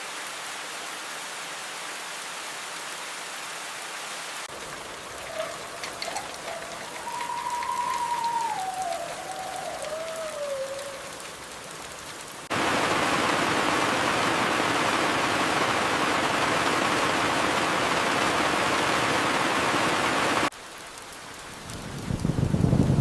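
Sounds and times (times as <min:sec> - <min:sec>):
heavy downpour: 0:00.0 - 0:23.0
steady rain: 0:00.0 - 0:23.0
thin falling whistle: 0:05.2 - 0:11.2.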